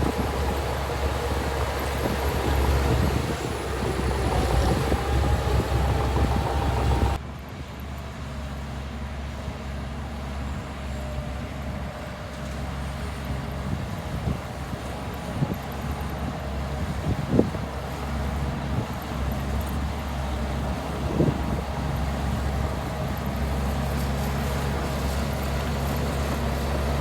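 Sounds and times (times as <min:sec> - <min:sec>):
heavy diesel machinery running: 0:00.0 - 0:27.0.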